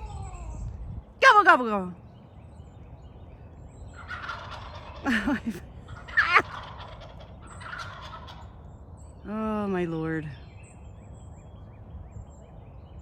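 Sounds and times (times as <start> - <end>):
wild turkey gobbling: 4.0 - 8.6.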